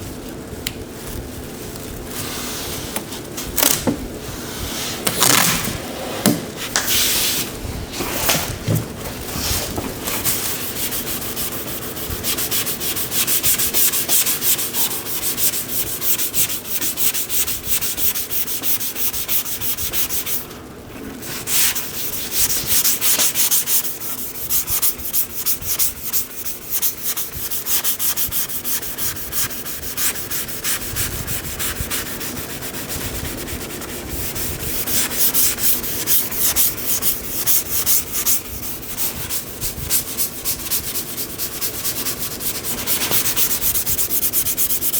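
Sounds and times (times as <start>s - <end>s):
sanding car body panel: 21.5s - 44.9s.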